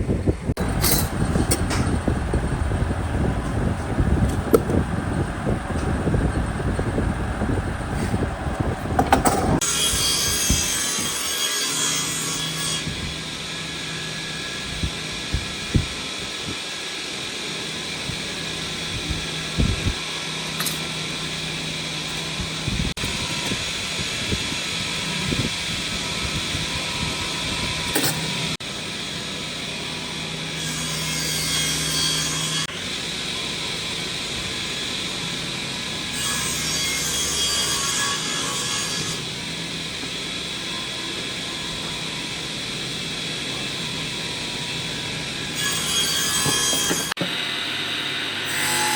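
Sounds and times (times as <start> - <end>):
power tool rasping wood: 45.5 - 47.3.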